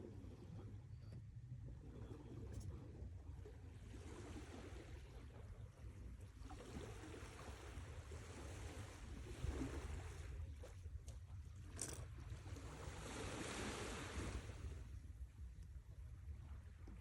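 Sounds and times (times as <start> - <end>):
sea waves washing ashore: 12.6 - 15.0.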